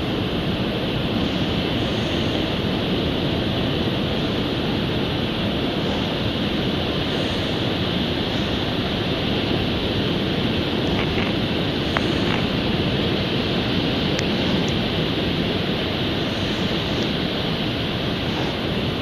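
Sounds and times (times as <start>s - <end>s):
ocean surf washing onto beach: 0.0s - 19.0s.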